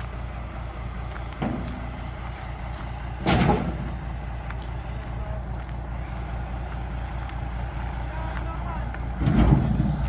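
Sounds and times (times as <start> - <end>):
truck engine running: 0.0 - 10.0
loud thump: 3.2 - 3.9.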